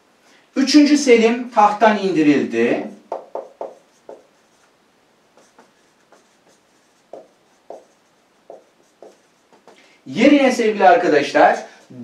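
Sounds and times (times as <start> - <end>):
pen making strokes: 3.1 - 4.7, 5.4 - 9.8.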